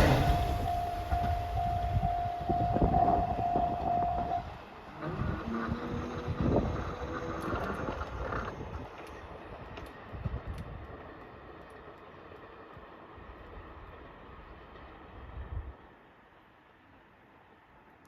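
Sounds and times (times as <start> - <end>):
wheels knocking over rail joints: 0.0 - 4.4
pulsing crossing warning tone: 0.0 - 4.6
diesel train passing: 0.0 - 18.0.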